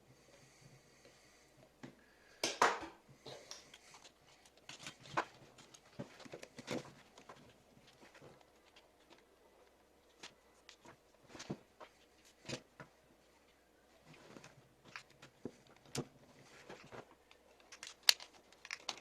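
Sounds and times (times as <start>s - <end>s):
plastic parts clicking and tapping: 14.9s - 19.0s.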